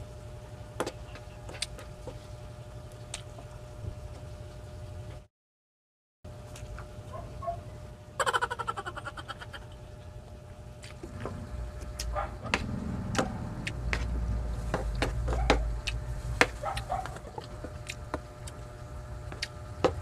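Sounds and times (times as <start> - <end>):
person chewing: 10.8 - 18.6, 19.3 - 19.6.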